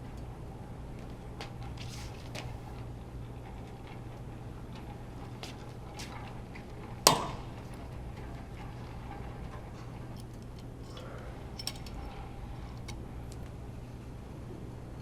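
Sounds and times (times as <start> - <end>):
metallic clank: 7.1 - 7.8
tools clicking: 10.2 - 12.0.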